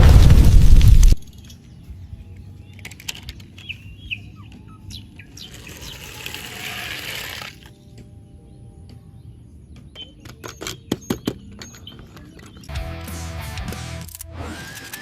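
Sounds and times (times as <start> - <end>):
faint bird-like chirps: 1.3 - 6.2
scattered clicks: 2.7 - 3.8, 13.6 - 15.0.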